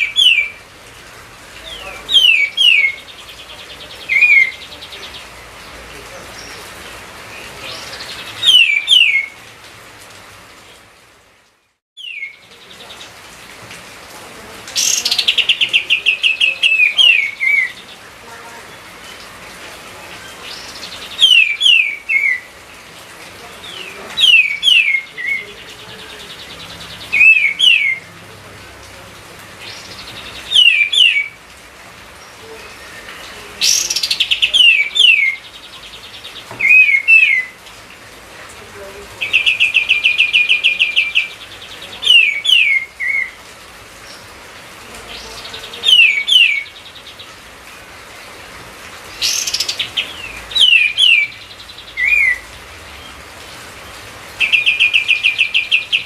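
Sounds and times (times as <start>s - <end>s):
songbird whistling song: 0.0s - 0.6s, 1.7s - 5.3s, 7.4s - 9.4s, 12.0s - 12.5s, 14.8s - 17.9s, 20.5s - 22.5s, 23.7s - 25.5s, 26.9s - 28.1s, 29.7s - 31.4s, 32.6s - 37.6s, 39.2s - 43.4s, 45.2s - 47.0s, 49.2s - 52.4s, 54.4s - 56.0s.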